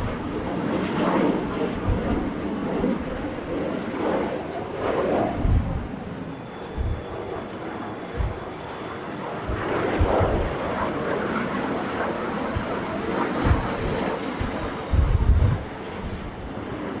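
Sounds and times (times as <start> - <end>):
jet engines rushing: 0.0 - 17.0
wind buffeting microphone: 0.0 - 17.0.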